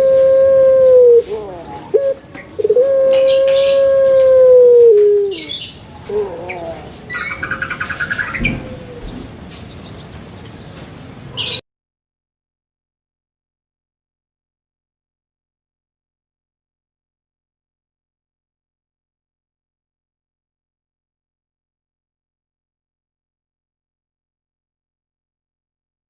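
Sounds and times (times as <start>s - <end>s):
animal calling: 0.0s - 9.4s.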